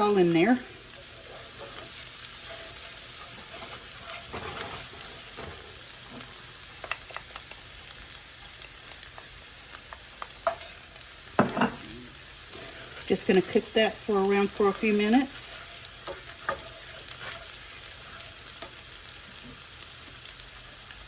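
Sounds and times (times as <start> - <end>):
shallots sizzling in butter: 0.0 - 21.0
utensil clicking in pan: 6.8 - 7.6.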